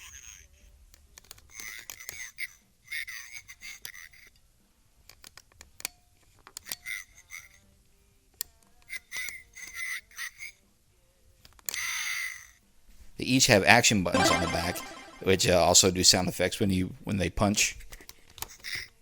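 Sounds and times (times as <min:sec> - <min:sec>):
tinny toy voice recordings: 0:14.1 - 0:15.8.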